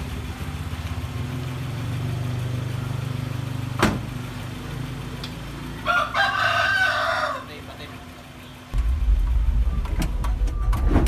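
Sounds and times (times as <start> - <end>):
car engine idling: 0.0 - 11.0
rooster crowing: 5.8 - 7.7.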